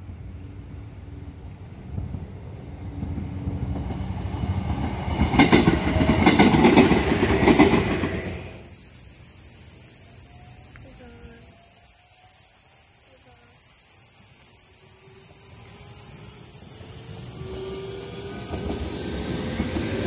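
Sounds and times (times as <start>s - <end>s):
electric train passing: 0.0s - 20.0s
wheels clacking over rail joints: 3.0s - 8.4s
high-pitched buzz: 8.4s - 20.0s.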